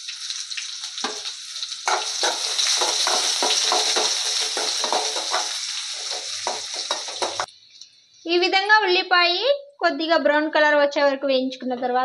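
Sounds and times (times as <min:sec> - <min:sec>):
onions sizzling in hot oil: 0:00.0 - 0:07.8
spatula scraping pan: 0:01.9 - 0:07.5.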